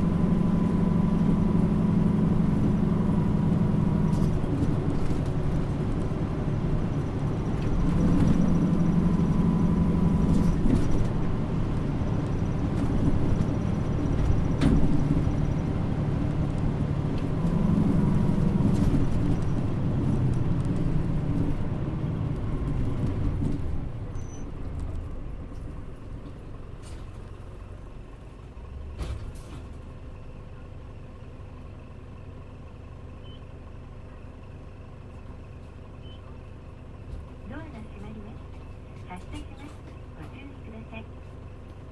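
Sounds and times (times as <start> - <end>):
bus diesel engine pulling hard: 0.0 - 41.9.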